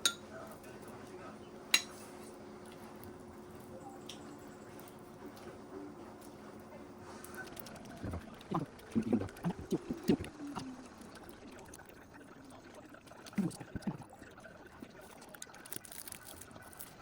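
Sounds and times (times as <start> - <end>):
liquid pouring and gurgling: 7.7 - 17.0.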